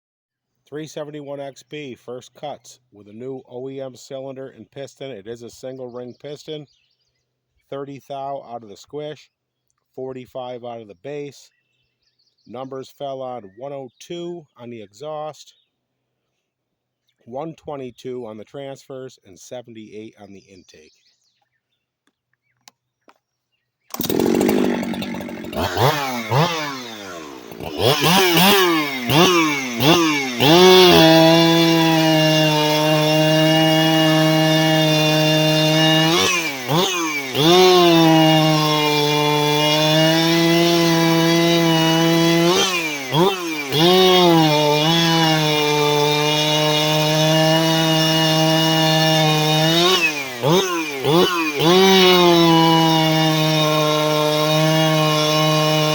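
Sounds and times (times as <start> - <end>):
chainsaw revving and cutting wood: 23.9 - 55.9.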